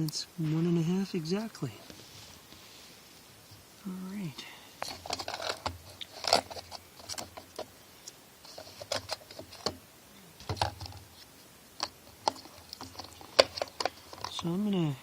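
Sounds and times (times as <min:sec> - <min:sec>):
light clicks and knocks of small parts: 0:04.8 - 0:09.8, 0:10.4 - 0:14.7.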